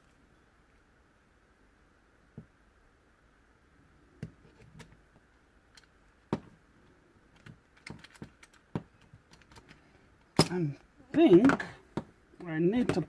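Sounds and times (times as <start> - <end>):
small metal parts clicking: 7.4 - 9.8.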